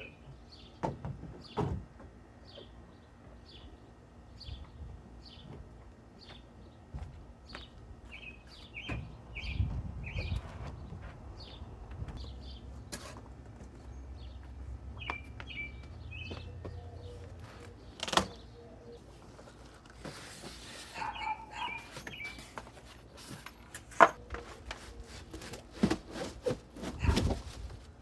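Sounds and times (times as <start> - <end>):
small birds chirping: 6.2 - 12.9, 13.6 - 19.6, 20.8 - 23.4.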